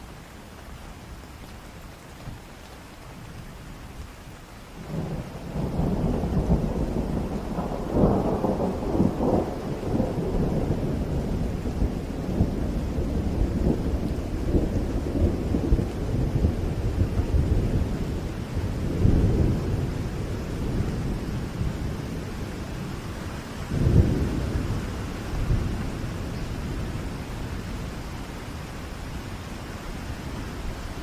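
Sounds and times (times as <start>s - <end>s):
steady rain: 0.0s - 31.0s
thunder rumbling: 4.8s - 29.3s.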